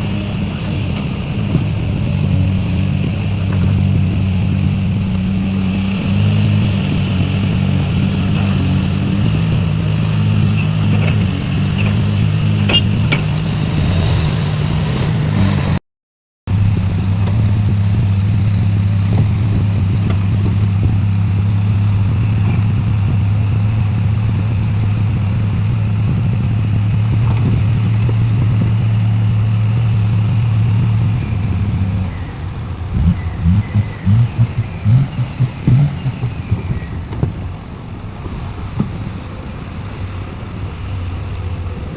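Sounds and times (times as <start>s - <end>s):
diesel engine low hum: 0.0s - 15.8s, 16.5s - 41.9s.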